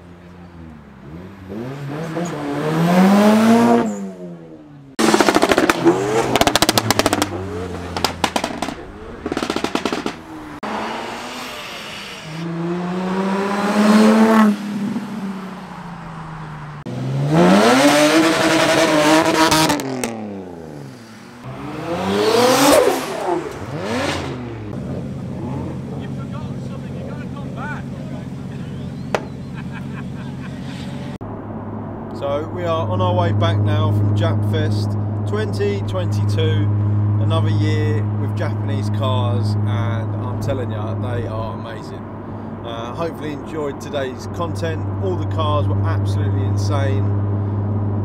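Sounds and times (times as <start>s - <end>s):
car engines revving: 0.0s - 48.0s
exhaust pops and bangs: 5.0s - 10.6s, 29.0s - 29.6s.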